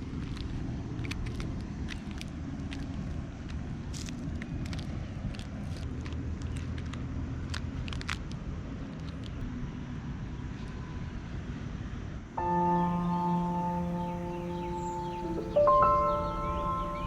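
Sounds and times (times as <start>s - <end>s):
bell-like ambient music: 12.4s - 17.0s.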